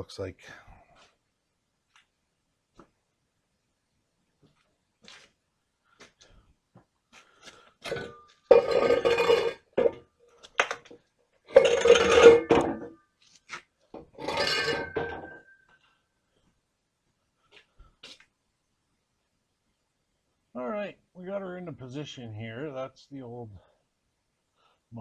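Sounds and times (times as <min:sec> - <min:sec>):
metal exhaust scraping floor: 0:11.5 - 0:12.5.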